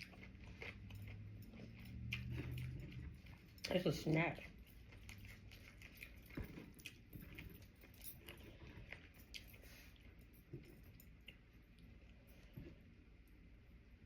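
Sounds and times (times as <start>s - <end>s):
faint chewing: 0.0s - 14.0s.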